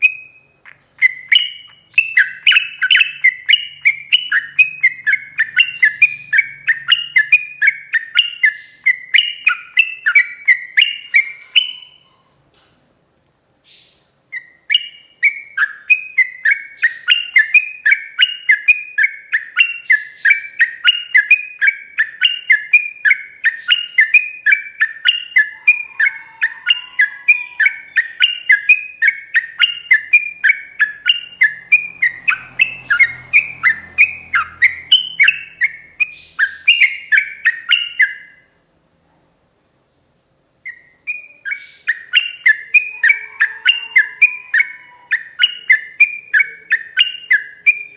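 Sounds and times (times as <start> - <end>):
bird singing repeated notes: 0.0 - 12.3, 13.7 - 38.7, 40.6 - 47.9.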